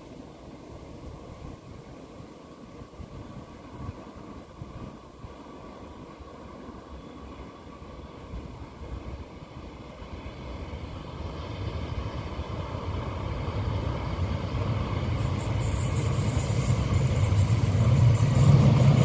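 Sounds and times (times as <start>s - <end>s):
locomotive engine rumble: 7.8s - 19.0s
wheels clattering on rail: 9.0s - 19.0s.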